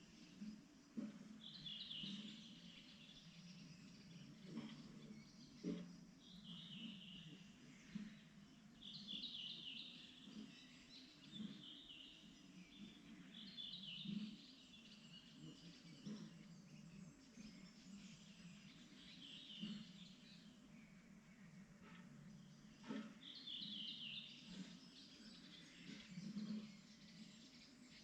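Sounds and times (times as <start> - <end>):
songbird chirping: 0.0 - 28.0.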